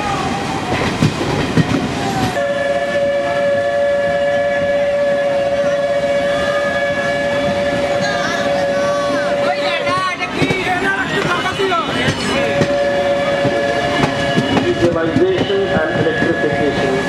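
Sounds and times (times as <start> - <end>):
locomotive horn blast: 2.4 - 10.4, 11.1 - 17.0
train wheels clicking over rail joints: 9.9 - 17.0.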